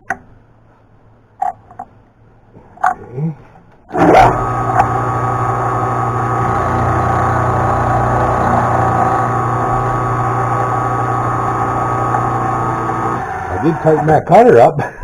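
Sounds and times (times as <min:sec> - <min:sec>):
milling machine whining: 0:03.9 - 0:14.4.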